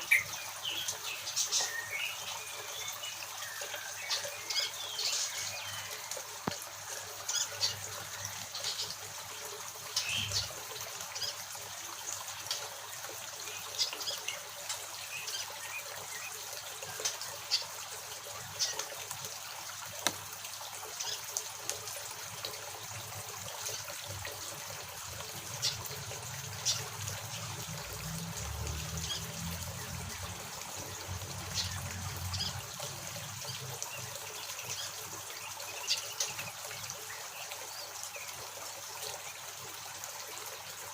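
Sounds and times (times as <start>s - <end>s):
small birds chirping: 0.0s - 6.1s, 9.9s - 11.4s, 28.7s - 38.4s
water trickling: 0.0s - 40.9s.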